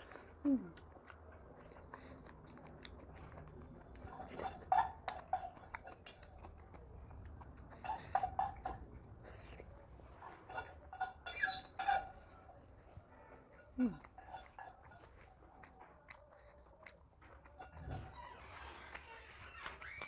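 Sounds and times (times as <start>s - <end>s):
person chewing: 0.0s - 9.8s, 11.8s - 20.0s
clatter against dishes: 17.6s - 18.2s.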